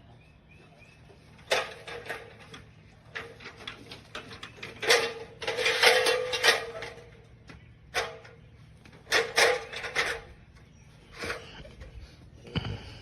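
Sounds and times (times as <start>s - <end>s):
thin metal clicking and rattling: 1.5s - 7.2s, 7.9s - 10.4s.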